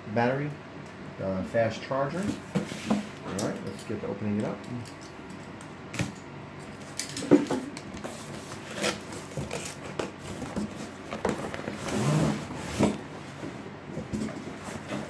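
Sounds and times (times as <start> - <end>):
scraping rustle: 8.0 - 15.0.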